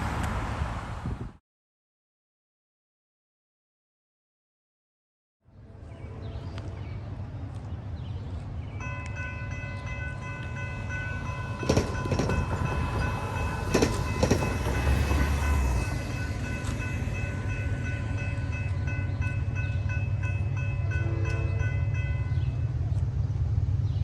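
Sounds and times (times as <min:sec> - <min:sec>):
train rumbling past: 0:05.6 - 0:24.0
held chord of tones: 0:08.8 - 0:22.6
train wheel clacks: 0:10.2 - 0:19.4.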